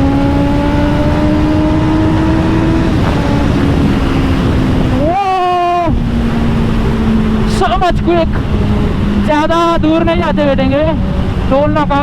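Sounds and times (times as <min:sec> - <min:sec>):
motorcycle engine revving: 0:00.0 - 0:12.0
wind noise: 0:00.0 - 0:12.0.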